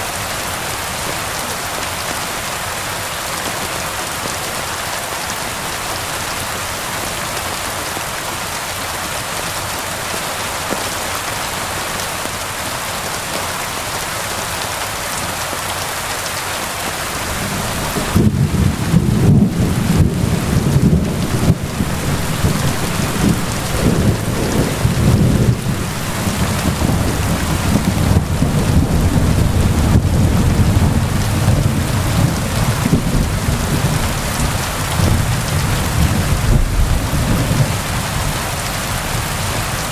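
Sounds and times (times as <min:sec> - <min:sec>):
rain hiss: 0:00.0 - 0:39.9
rolling thunder: 0:17.3 - 0:38.4.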